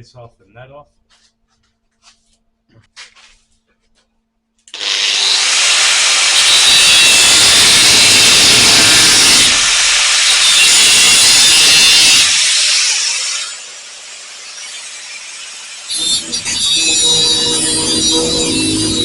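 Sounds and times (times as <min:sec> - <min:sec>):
power tool cutting sheet metal: 0:04.7 - 0:19.0.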